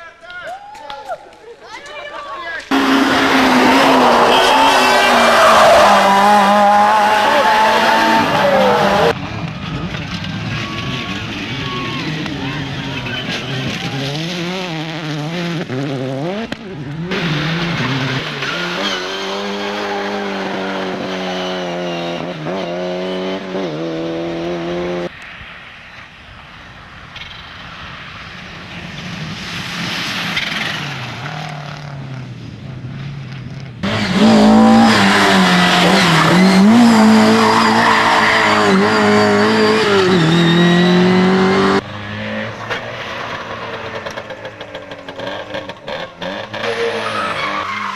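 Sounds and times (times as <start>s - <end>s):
rally car engines at high revs: 2.7s - 25.1s, 33.0s - 47.9s.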